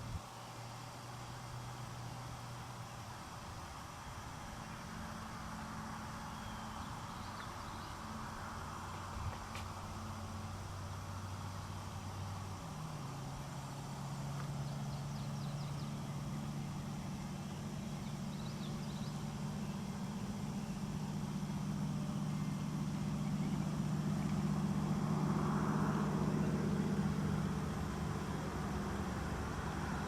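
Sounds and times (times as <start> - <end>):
vehicle engine idling: 0.0 - 30.0
faint high bird chirps: 6.2 - 8.1, 14.4 - 20.8.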